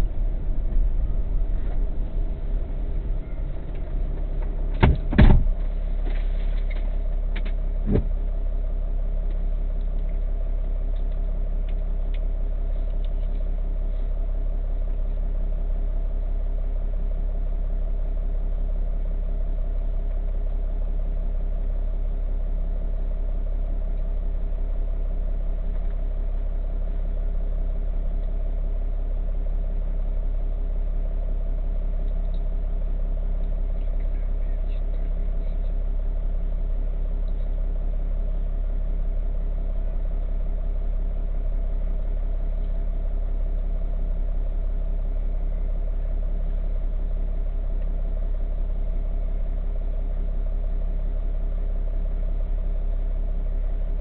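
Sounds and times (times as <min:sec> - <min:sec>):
car engine and road hum: 0:00.0 - 0:54.0
sharp thumps: 0:00.6 - 0:06.2.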